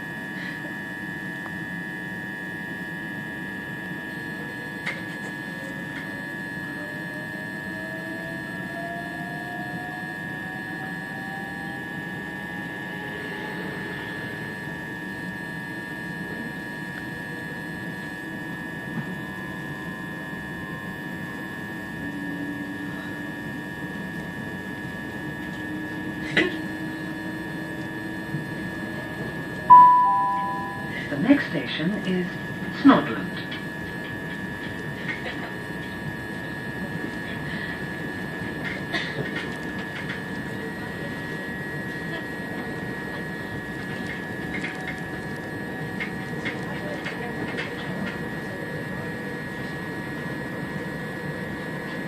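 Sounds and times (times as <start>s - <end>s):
electrical hum: 0.0s - 52.0s
motor whine rising in pitch: 6.7s - 14.4s.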